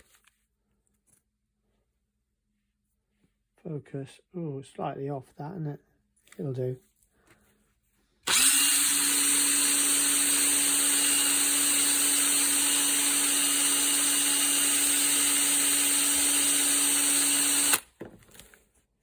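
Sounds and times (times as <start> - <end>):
small power tool motor grinding: 8.2 - 17.9.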